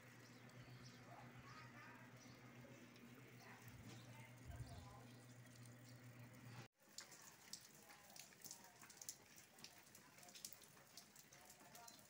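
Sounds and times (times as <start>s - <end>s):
raindrops ticking on surfaces: 2.9s - 12.0s
steady rain falling: 6.8s - 12.0s.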